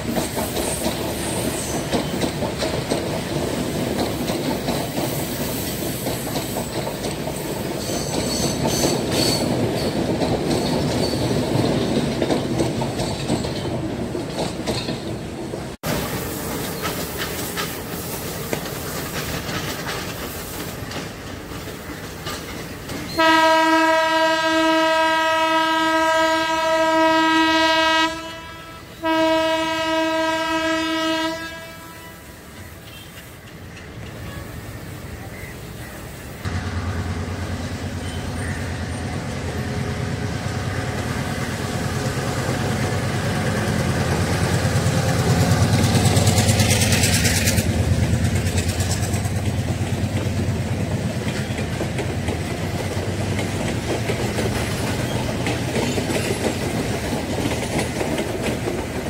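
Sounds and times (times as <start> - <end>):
diesel locomotive rumble: 0.0 - 59.0
train clickety-clack on rails: 0.0 - 59.0
train horn blasts: 23.1 - 33.2.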